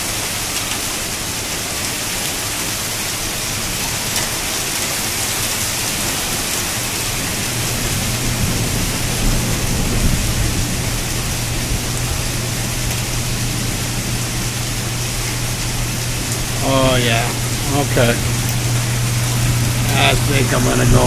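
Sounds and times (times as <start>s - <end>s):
heavy rain: 0.0s - 21.0s
wind: 0.0s - 21.0s
low thunder rumble: 7.1s - 16.6s, 17.3s - 21.0s.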